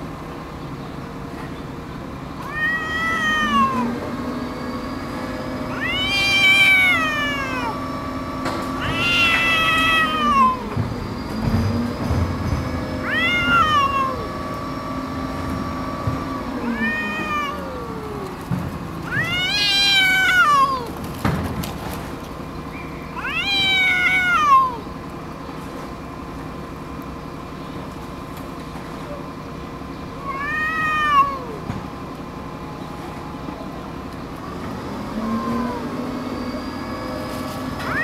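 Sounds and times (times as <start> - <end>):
cats yowling: 2.4 - 4.4, 5.6 - 10.9, 13.0 - 15.0, 16.2 - 21.1, 23.1 - 25.0, 30.1 - 31.9, 34.7 - 36.6, 37.6 - 38.0.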